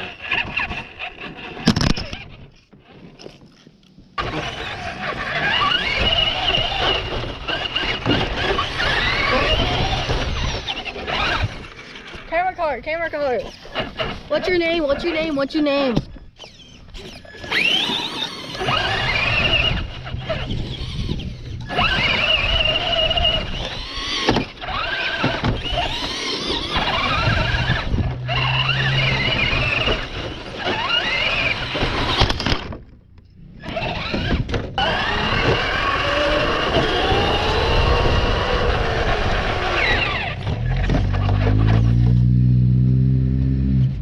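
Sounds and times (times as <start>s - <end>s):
electric motor whining: 4.2s - 12.6s, 13.2s - 32.8s, 33.4s - 44.0s
noisy rumble: 4.2s - 33.8s.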